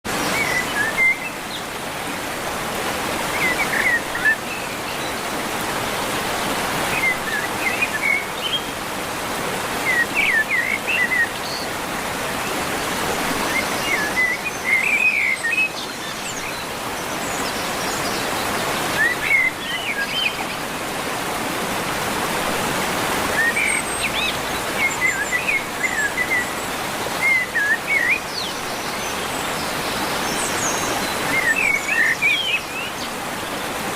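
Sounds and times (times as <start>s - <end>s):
small birds chirping: 23.4s - 33.9s.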